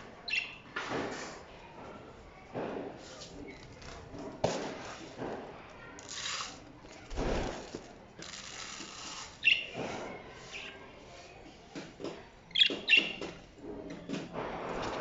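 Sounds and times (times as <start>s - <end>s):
small birds chirping: 0.2s - 0.6s, 9.4s - 10.9s, 12.4s - 13.5s.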